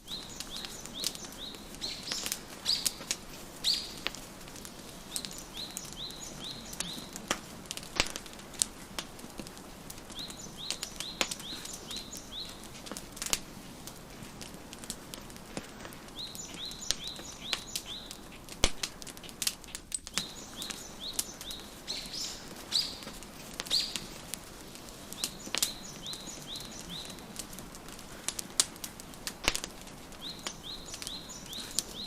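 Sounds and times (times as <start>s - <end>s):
songbird chirping: 0.0s - 8.6s, 9.8s - 13.2s, 15.8s - 28.1s, 28.9s - 32.0s
wood fire crackling and popping: 0.0s - 32.0s.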